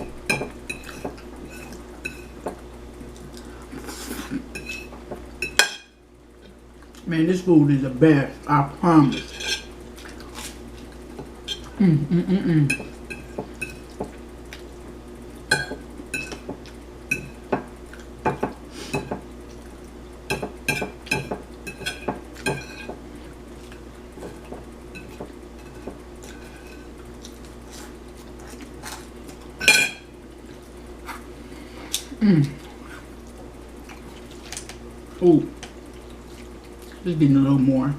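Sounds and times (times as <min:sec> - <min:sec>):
fork scraping on plate: 0:09.2 - 0:09.7.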